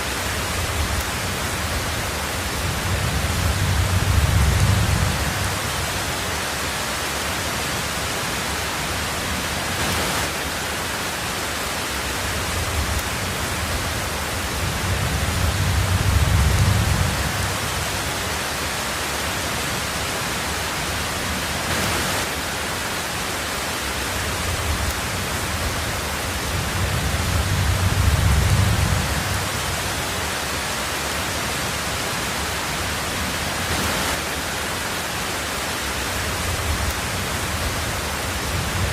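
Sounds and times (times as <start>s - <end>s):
heavy rain on a tin roof: 0.0s - 38.9s
distant thunder rumbles: 0.3s - 6.2s, 12.4s - 18.0s, 24.2s - 30.2s.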